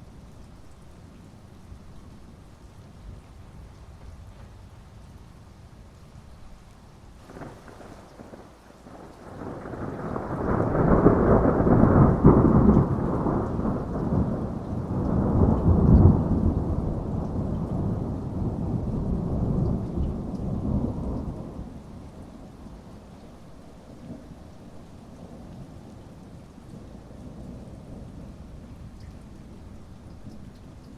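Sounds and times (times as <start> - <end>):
heavy rain: 0.0 - 30.9
thunder rumbling: 7.2 - 23.0.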